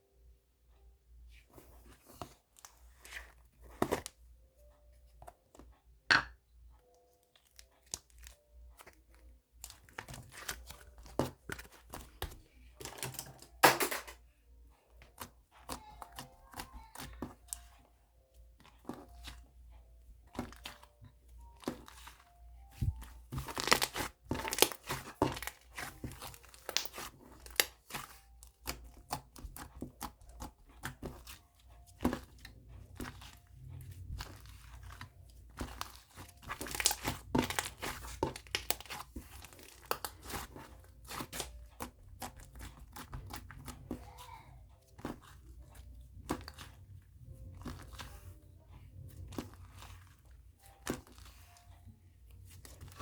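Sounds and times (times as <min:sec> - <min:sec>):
crinkling and tearing: 0:20.3 - 0:44.1.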